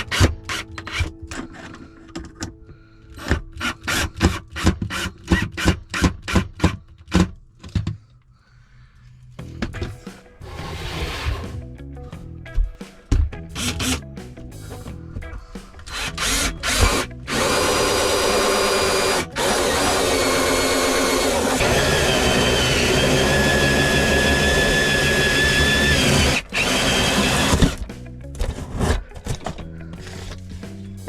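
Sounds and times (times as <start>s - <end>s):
power drill whining: 13.6s - 14.0s, 15.8s - 27.9s.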